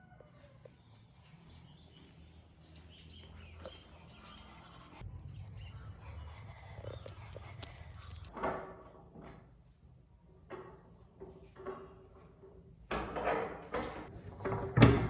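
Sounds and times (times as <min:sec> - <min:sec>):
faint birds chirping: 0:00.0 - 0:08.3
low steady rumble: 0:05.0 - 0:08.3.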